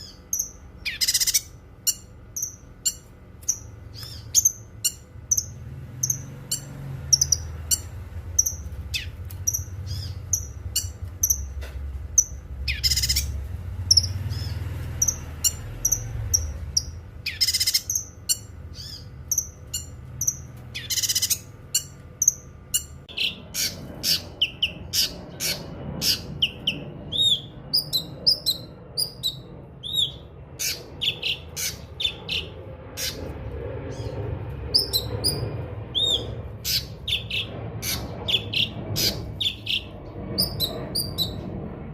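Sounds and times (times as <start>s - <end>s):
bird chirping and tweeting: 0.0s - 33.3s, 33.9s - 41.5s
harsh rasping bird calls: 0.0s - 41.4s.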